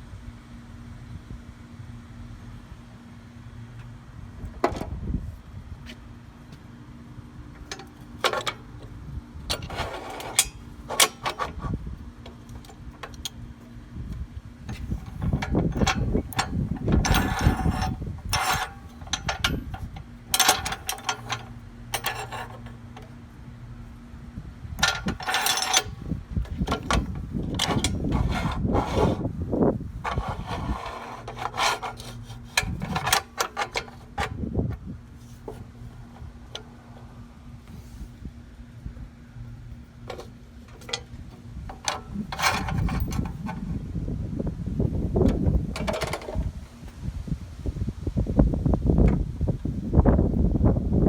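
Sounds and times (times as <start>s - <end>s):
steady low hum: 0.0s - 51.0s
clicks and clanks on metal: 7.6s - 8.9s, 9.5s - 13.4s, 14.7s - 23.2s, 24.8s - 29.2s, 30.0s - 34.4s, 40.0s - 43.6s, 45.3s - 46.5s
scraping or rubbing bursts: 9.6s - 11.0s, 27.6s - 29.3s, 30.1s - 33.3s.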